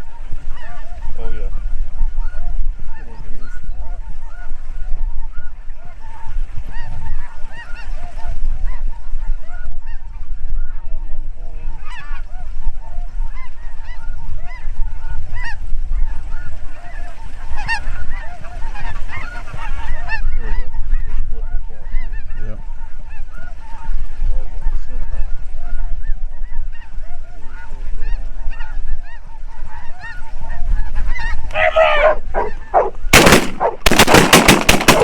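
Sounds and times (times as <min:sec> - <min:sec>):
geese honking: 0:00.1 - 0:01.4, 0:02.1 - 0:10.2, 0:11.7 - 0:14.7, 0:15.3 - 0:24.0, 0:24.6 - 0:35.0.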